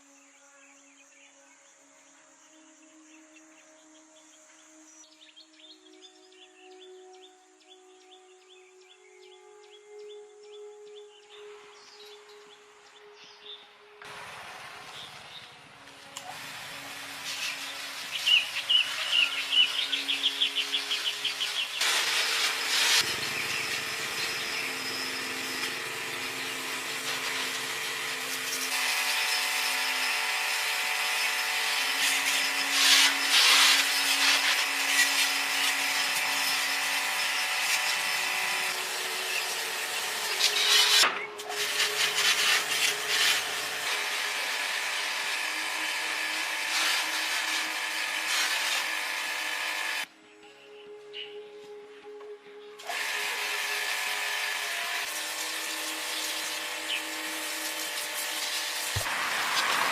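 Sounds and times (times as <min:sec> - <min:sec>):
power tools whining: 0:14.0 - 0:50.1, 0:52.8 - 0:59.9
tool scraping metal: 0:21.0 - 0:50.1.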